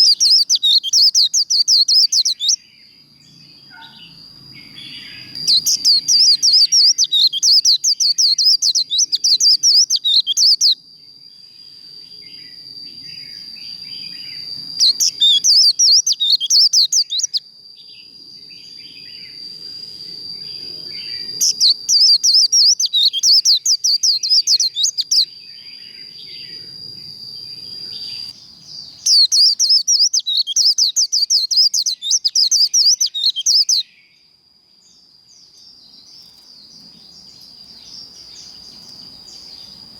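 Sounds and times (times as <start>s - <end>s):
bird high twittering warble: 0.0s - 10.8s, 12.3s - 18.0s, 18.6s - 26.7s, 27.5s - 33.9s.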